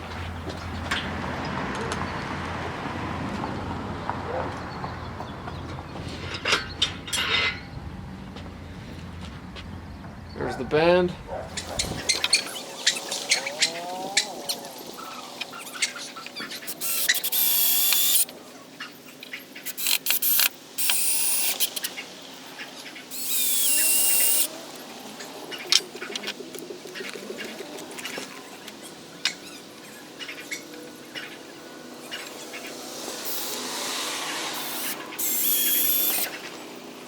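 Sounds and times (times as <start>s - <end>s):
power drill whining: 11.6s - 18.3s, 19.7s - 21.9s, 23.1s - 24.8s, 32.2s - 36.7s.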